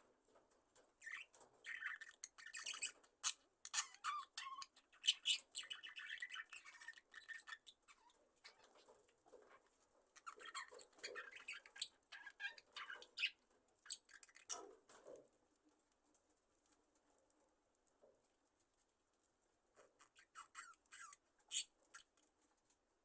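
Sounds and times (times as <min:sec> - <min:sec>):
budgerigars chirping: 0:01.0 - 0:08.9, 0:10.2 - 0:14.6, 0:20.0 - 0:22.1.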